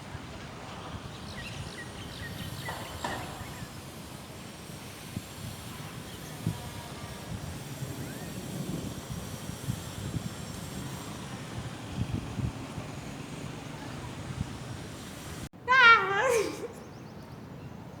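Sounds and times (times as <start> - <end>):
steady rain hiss: 0.0 - 15.5.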